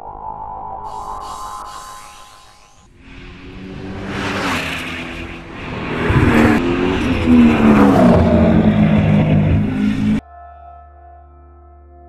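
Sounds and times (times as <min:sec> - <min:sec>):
car engine running hard: 0:02.9 - 0:10.2.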